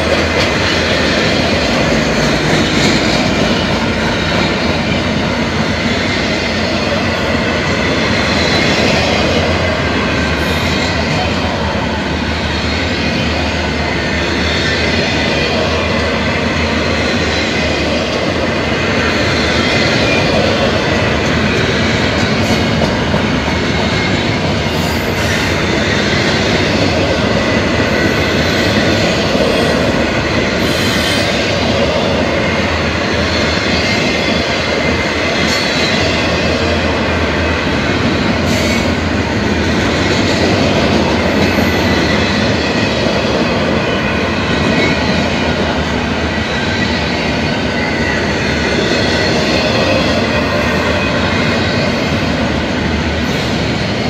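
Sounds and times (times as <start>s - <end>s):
steel wheels rumbling on rail: 0.0s - 54.0s.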